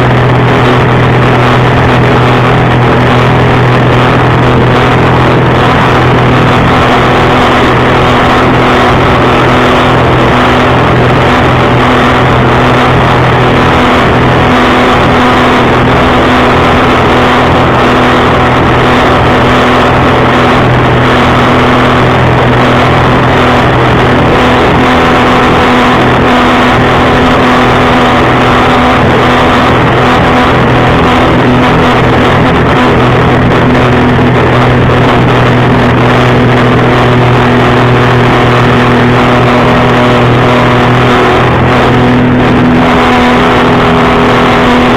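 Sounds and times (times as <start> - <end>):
jet ski engine running: 0.0 - 44.9
rush of noise: 0.0 - 44.9.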